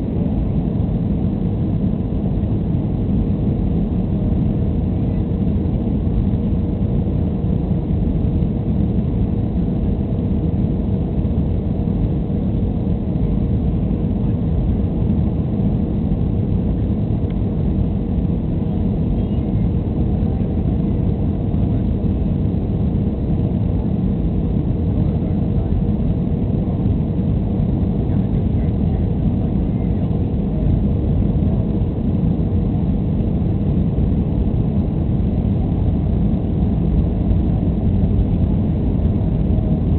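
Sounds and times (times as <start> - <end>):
faint constant hum: 0.0 - 39.9
jet engine cabin rush: 0.0 - 39.9.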